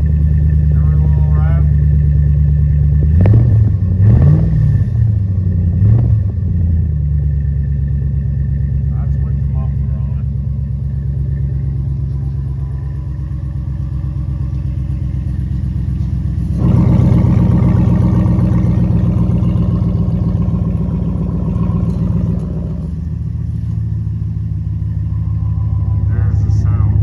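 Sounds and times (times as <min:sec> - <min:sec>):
car engine idling and revving: 0:00.0 - 0:27.0.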